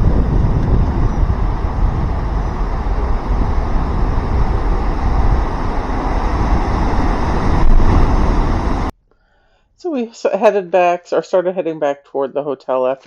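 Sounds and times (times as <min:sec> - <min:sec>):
ocean surf washing toward shore: 0:00.0 - 0:08.9
wind rumbling on microphone: 0:00.0 - 0:08.9.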